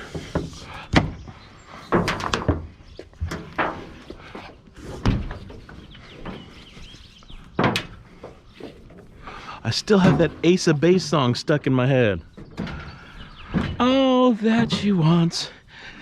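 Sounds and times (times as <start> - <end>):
knocks and thuds of load: 0.1 - 4.0, 4.9 - 6.5, 9.9 - 10.8, 12.4 - 15.6.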